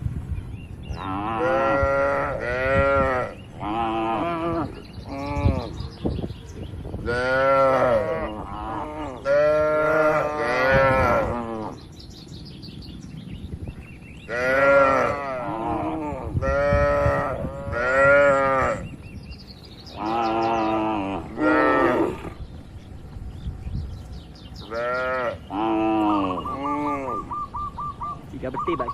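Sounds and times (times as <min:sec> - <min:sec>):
cattle mooing: 0:01.0 - 0:05.8, 0:07.1 - 0:11.8, 0:14.3 - 0:18.8, 0:20.0 - 0:22.4, 0:24.7 - 0:27.3.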